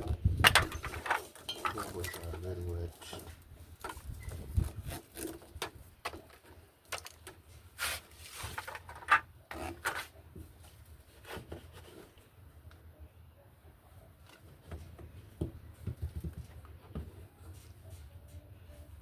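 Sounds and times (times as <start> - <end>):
machine parts knocking and scraping: 0.0 - 2.4.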